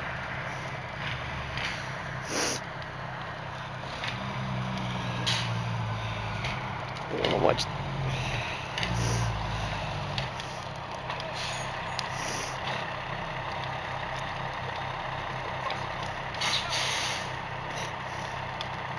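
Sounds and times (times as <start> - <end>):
heavy engine idling: 0.0 - 18.9.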